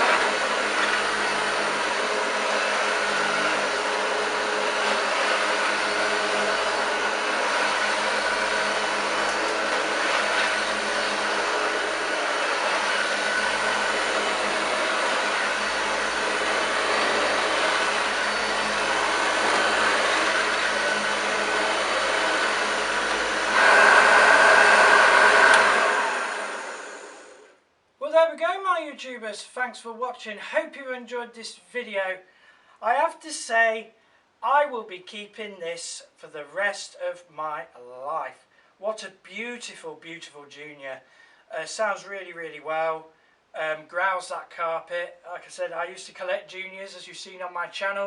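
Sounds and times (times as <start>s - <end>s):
vacuum cleaner running on carpet: 0.0s - 27.5s.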